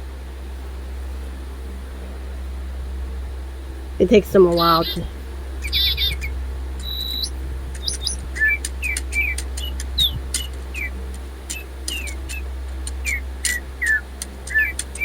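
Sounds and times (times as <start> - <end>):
low steady hum: 0.0 - 15.0
robotic toy birds chirping: 5.6 - 10.9, 13.0 - 15.0.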